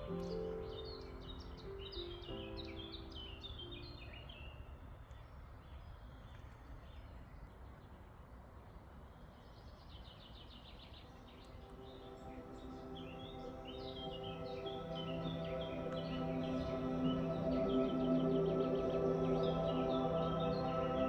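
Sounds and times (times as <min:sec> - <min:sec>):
small birds chirping: 0:00.0 - 0:21.0
wind rumbling: 0:04.5 - 0:21.0.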